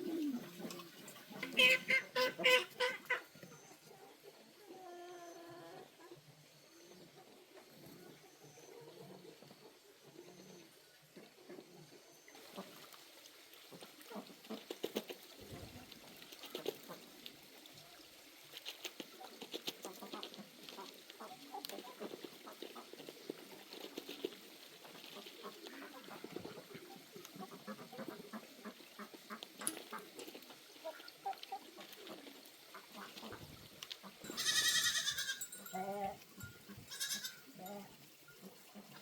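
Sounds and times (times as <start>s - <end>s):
ducks calling: 0.0s - 3.7s
chickens calling: 0.0s - 4.8s.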